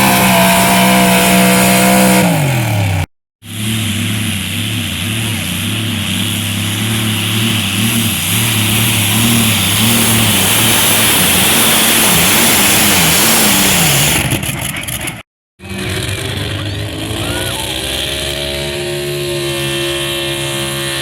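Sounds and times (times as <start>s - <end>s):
loud rushing noise: 0.0s - 14.5s
vehicle engine under load: 0.0s - 21.0s.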